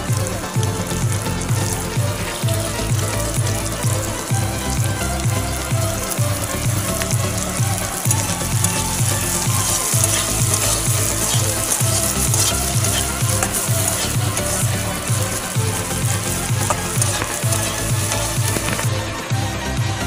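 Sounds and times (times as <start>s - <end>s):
onions sizzling in a wok: 0.0s - 19.8s
background music with low beat: 0.0s - 20.0s
metal spatula scraping wok: 7.9s - 18.9s.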